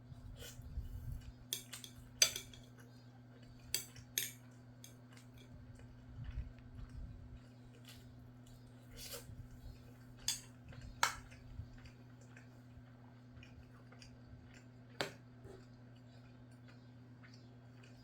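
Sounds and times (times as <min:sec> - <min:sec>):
low electrical hum: 0:00.0 - 0:18.0
utensils clinking against a dish: 0:01.5 - 0:02.8, 0:03.6 - 0:05.6, 0:10.2 - 0:11.2.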